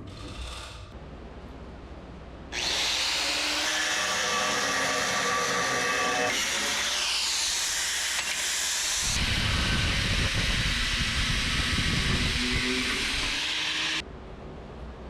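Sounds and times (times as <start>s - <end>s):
power tool running: 2.6s - 14.0s.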